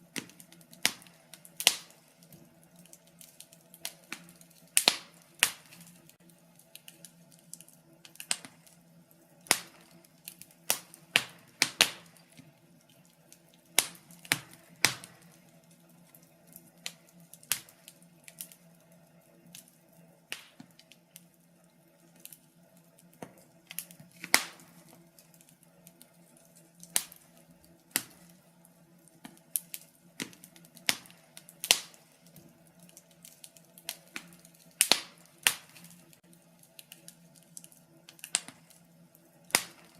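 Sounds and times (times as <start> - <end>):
faint steady hum: 0.0 - 39.9
wood fire crackling: 0.0 - 39.9
sharp pops and snaps: 0.1 - 8.8, 9.4 - 18.7, 20.3 - 21.3, 22.1 - 38.9, 39.5 - 39.9.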